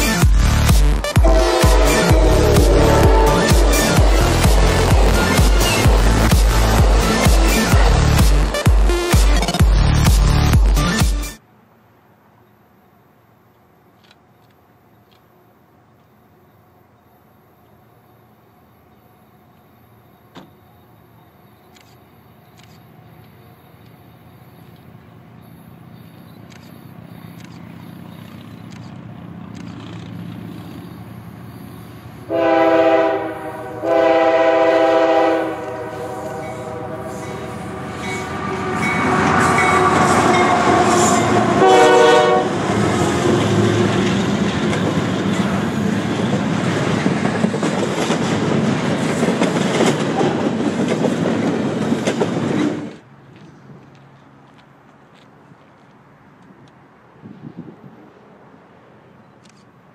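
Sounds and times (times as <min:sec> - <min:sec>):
passing train rumble: 0:00.0 - 0:11.0, 0:22.9 - 0:59.9
train horn blasts: 0:01.0 - 0:07.2, 0:32.3 - 0:44.0.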